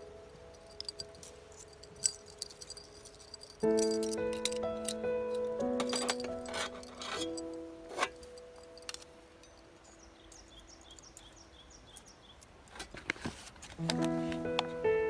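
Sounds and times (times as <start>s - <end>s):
background music: 0.0s - 10.4s, 13.8s - 15.0s
bird chirping: 7.2s - 12.7s.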